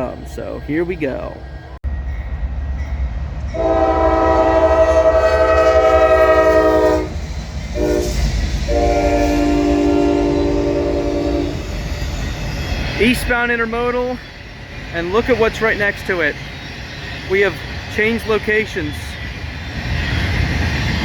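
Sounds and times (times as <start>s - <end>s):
locomotive air horn blasts: 3.6s - 7.2s, 7.8s - 11.6s.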